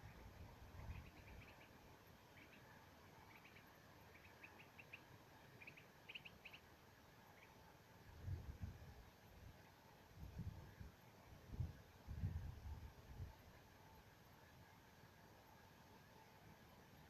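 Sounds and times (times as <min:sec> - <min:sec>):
small bird chirping: 0:00.0 - 0:07.6.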